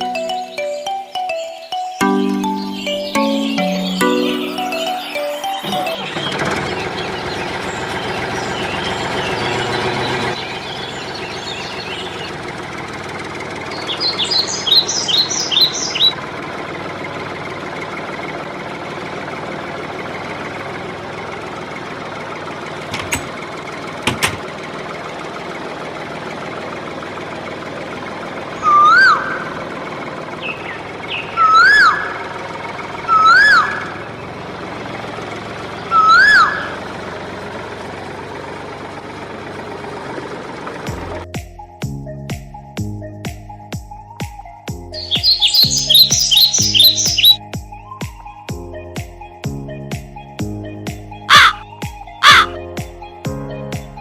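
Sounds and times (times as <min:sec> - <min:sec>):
bird chirps: 0:00.0 - 0:12.4, 0:13.6 - 0:16.2, 0:30.3 - 0:32.3, 0:33.1 - 0:34.2, 0:35.7 - 0:36.8, 0:44.9 - 0:47.4, 0:51.3 - 0:52.6
loud rising and falling bird calls: 0:00.0 - 0:16.2, 0:28.4 - 0:37.1, 0:45.0 - 0:47.4, 0:51.3 - 0:52.6.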